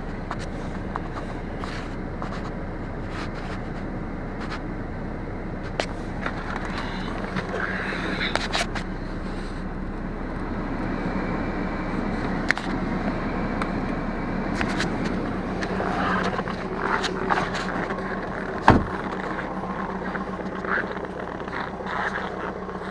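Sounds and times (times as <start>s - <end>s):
diesel engine idling: 0.0s - 22.9s.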